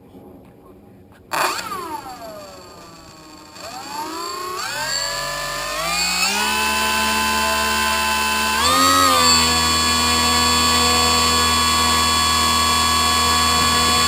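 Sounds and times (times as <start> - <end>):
motor whining: 1.3 - 14.0.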